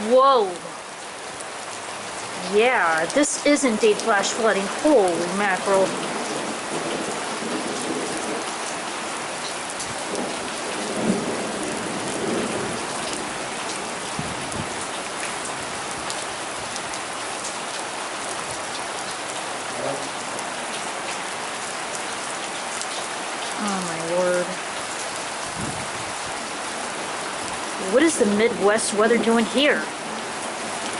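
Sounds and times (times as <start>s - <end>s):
torrential rain pouring: 0.0s - 30.9s
low rumble of thunder: 5.4s - 8.7s, 9.9s - 14.9s, 25.4s - 26.4s.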